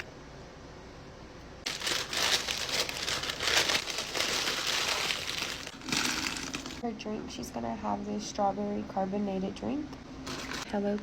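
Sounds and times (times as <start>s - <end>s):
packaging crinkling and rustling: 1.6s - 6.8s, 10.2s - 10.7s.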